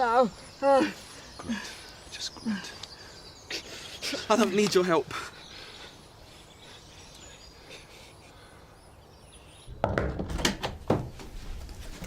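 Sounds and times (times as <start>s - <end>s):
faint birdsong: 0.0s - 12.0s
sharp wooden knocks and thuds: 9.7s - 12.0s.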